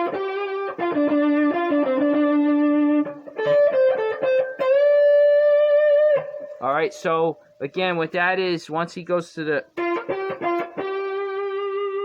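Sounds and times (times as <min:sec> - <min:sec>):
blues guitar lead: 0:00.0 - 0:07.5, 0:09.6 - 0:12.0.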